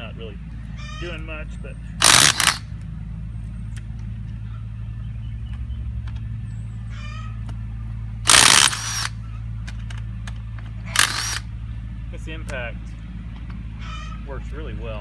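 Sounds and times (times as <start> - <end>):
impact wrench hammering: 2.0 - 2.6, 8.3 - 9.1, 11.0 - 11.4.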